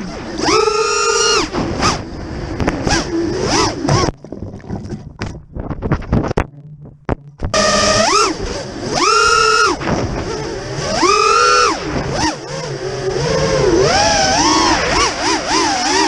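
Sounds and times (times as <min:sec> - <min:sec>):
quadcopter motors whining: 0:00.0 - 0:04.1, 0:07.5 - 0:16.0.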